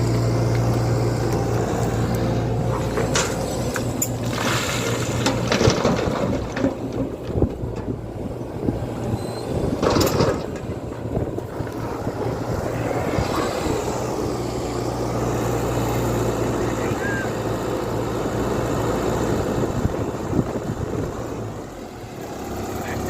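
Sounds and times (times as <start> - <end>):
diesel engine running: 0.0 - 23.0
knocks and clatter: 2.7 - 8.0, 9.7 - 11.1.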